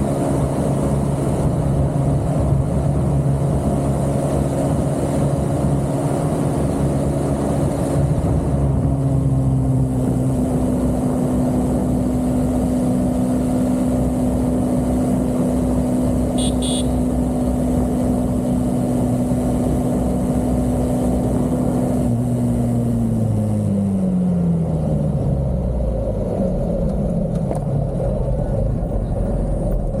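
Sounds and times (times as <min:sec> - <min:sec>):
vehicle engine running: 0:00.0 - 0:30.0
wind and road noise: 0:00.0 - 0:30.0.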